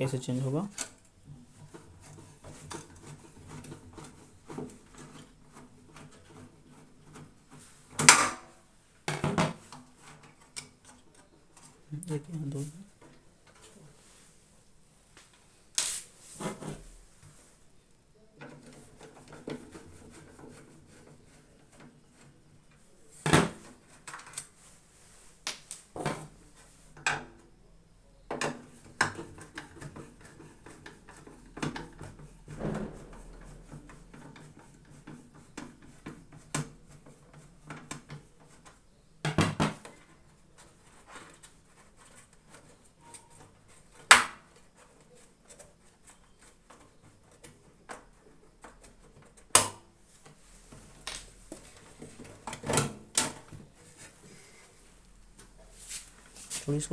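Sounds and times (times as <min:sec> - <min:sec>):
metallic knocks and clatter: 0:31.6 - 0:35.2.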